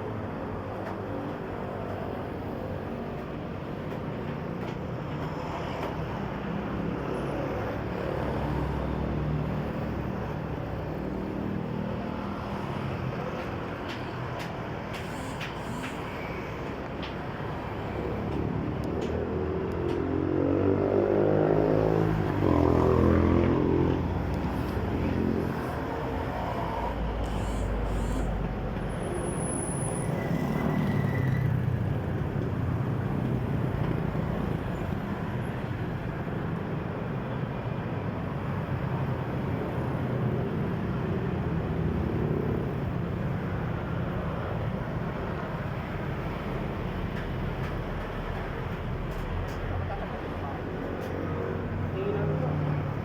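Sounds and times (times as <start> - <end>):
low traffic rumble: 0.0 - 53.0
vehicle engine passing: 19.9 - 28.4.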